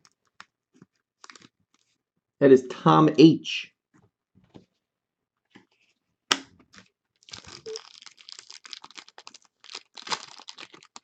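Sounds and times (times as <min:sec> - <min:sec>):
packaging crinkling and tearing: 0:01.2 - 0:01.9, 0:06.7 - 0:11.0.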